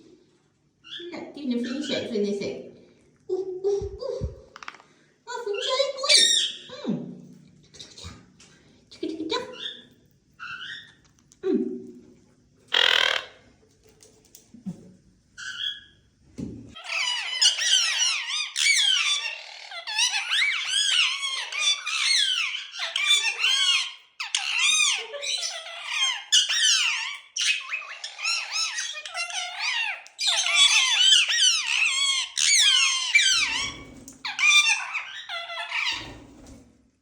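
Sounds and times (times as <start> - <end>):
parrot chattering shrill calls: 5.6 - 6.7, 10.4 - 11.0, 12.7 - 13.4, 16.8 - 36.2.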